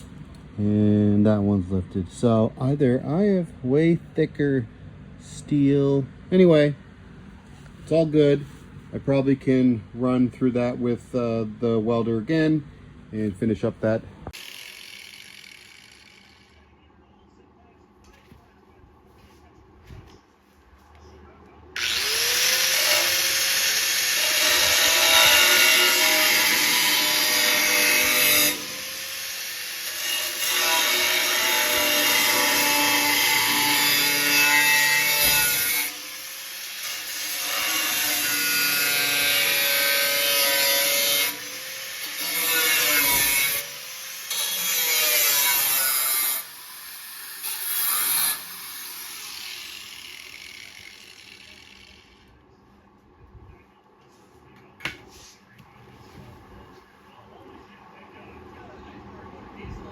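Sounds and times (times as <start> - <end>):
angle grinder grinding steel: 14.4 - 16.7, 21.8 - 52.3.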